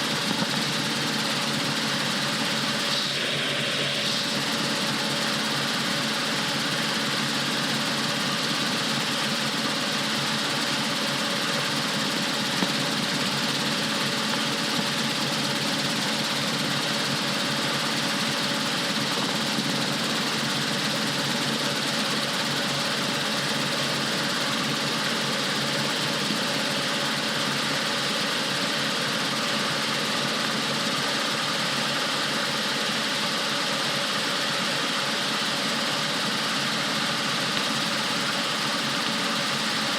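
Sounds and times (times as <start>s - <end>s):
helicopter engine and rotors droning: 0.0s - 39.9s.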